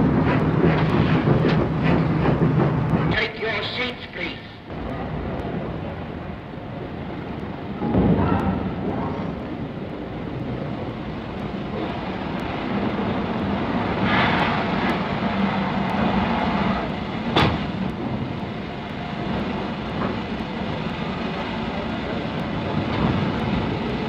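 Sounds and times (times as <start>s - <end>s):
steam locomotive rumble: 0.0s - 24.0s.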